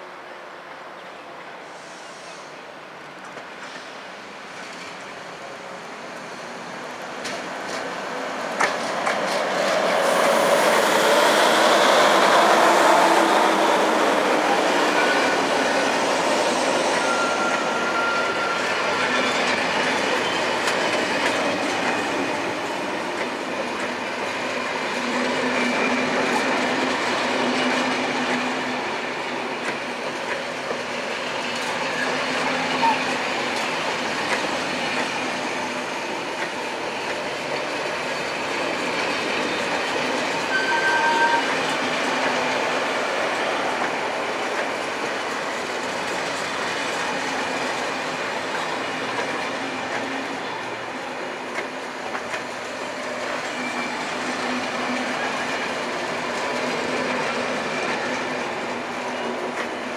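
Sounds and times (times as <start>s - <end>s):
train wheels rolling on rails: 1.6s - 59.9s
high wheel squeal: 14.8s - 19.6s, 40.5s - 41.7s, 53.4s - 54.3s.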